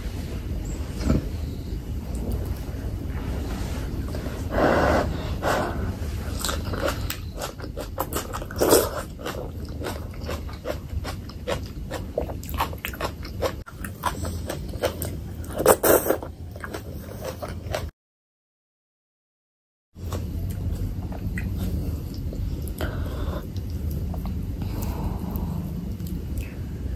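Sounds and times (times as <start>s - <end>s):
biting and chewing: 6.2s - 17.9s.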